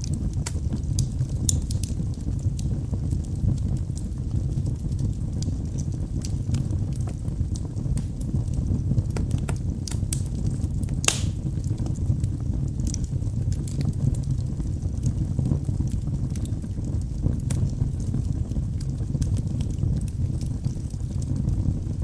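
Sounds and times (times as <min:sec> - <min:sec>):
burning logs crackling: 0:00.0 - 0:22.0
fire flames rumbling: 0:00.0 - 0:22.0
loud fire pop: 0:10.9 - 0:11.6.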